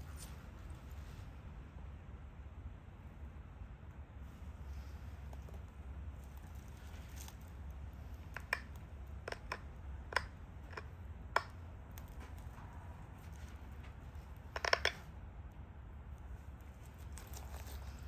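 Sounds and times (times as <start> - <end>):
stone flakes snapping clicks: 8.3 - 12.2, 14.6 - 15.0.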